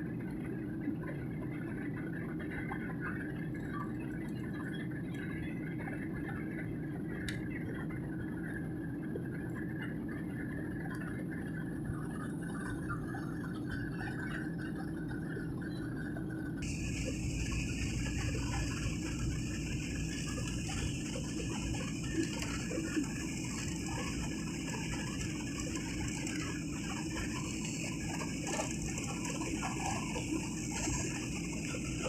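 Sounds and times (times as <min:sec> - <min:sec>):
airliner cabin engine and airflow noise: 0:00.0 - 0:15.2, 0:15.8 - 0:32.0
faint cabin sounds: 0:16.6 - 0:32.0.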